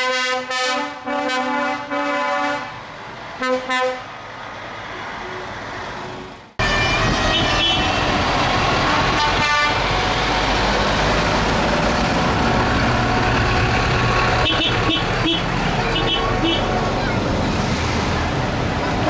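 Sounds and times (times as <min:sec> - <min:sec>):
truck engines running: 0:02.5 - 0:19.0
horns tooting: 0:06.6 - 0:10.2, 0:14.4 - 0:17.2.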